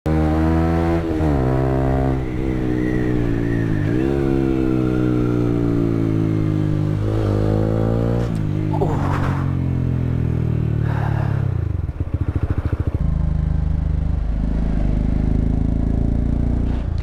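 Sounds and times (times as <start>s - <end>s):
motorcycle engine revving: 0.1s - 17.0s.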